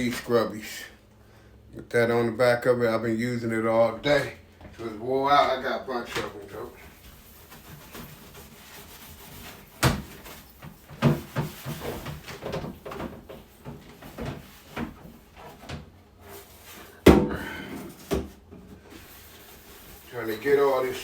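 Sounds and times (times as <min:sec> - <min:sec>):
sponge scrubbing: 0:04.1 - 0:17.0, 0:18.8 - 0:21.0.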